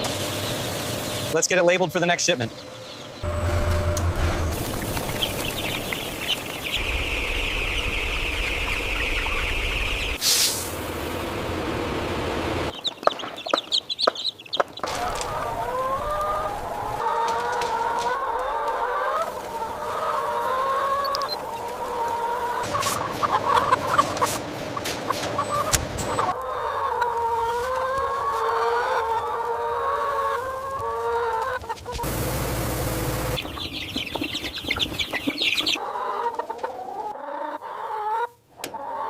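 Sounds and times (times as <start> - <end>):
machine hum with whine: 3.1 - 5.5, 6.8 - 12.7, 32.0 - 33.4
chickens clucking: 4.0 - 39.0.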